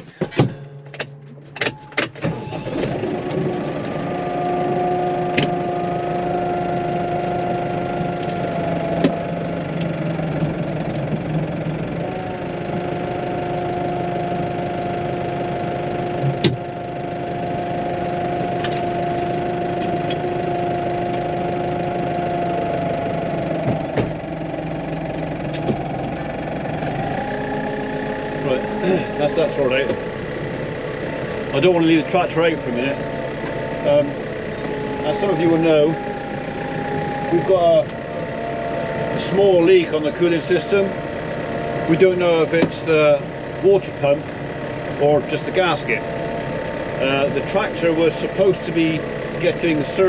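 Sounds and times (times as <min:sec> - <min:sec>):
sharp clunks: 0:00.0 - 0:03.0, 0:16.3 - 0:16.6
tractor engine running: 0:00.0 - 0:50.0.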